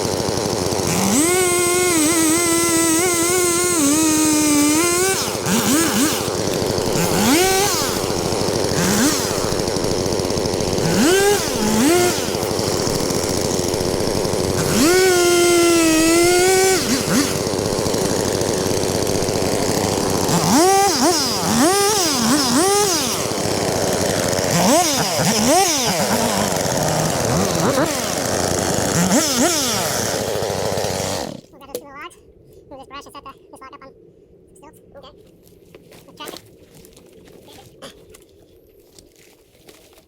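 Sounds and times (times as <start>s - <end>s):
chainsaw revving: 0.0s - 31.5s.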